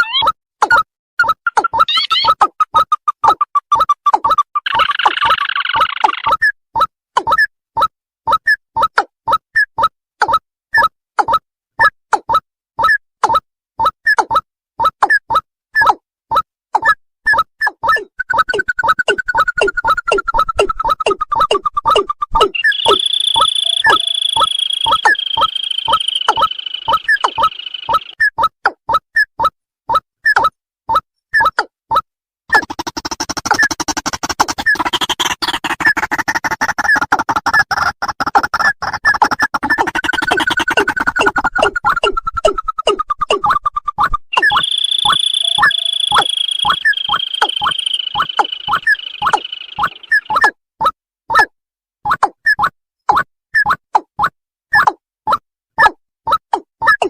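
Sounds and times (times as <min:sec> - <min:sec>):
bird calls short rising notes: 0:18.2 - 0:28.2, 0:44.4 - 0:50.4
high buzzing trill: 0:22.6 - 0:28.2, 0:44.4 - 0:50.2.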